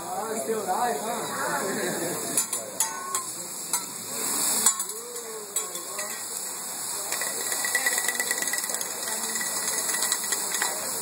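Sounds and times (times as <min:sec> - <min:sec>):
food sizzling on a griddle: 0:00.0 - 0:11.0
metal spatulas clacking on plate: 0:02.4 - 0:03.9, 0:04.6 - 0:06.2, 0:07.1 - 0:10.9.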